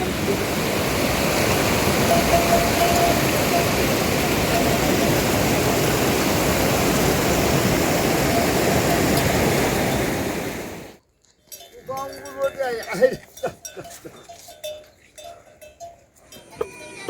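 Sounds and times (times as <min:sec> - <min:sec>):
water rushing: 0:00.0 - 0:11.0.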